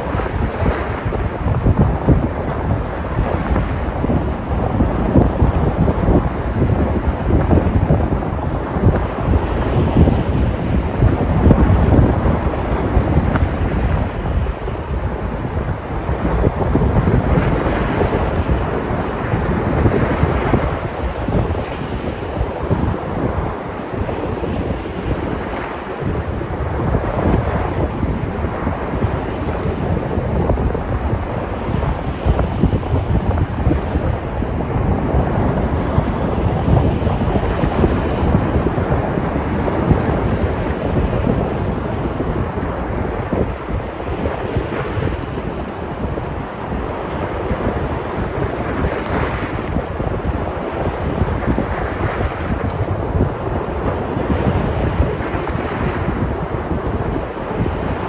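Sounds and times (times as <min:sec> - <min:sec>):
waves breaking on shore: 0:00.0 - 0:58.0
wind rumbling on microphone: 0:00.0 - 0:58.0.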